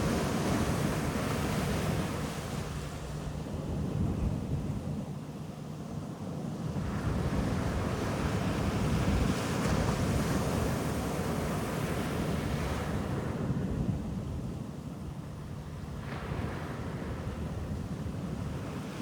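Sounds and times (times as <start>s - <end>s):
ocean surf on beach: 16.0s - 19.0s.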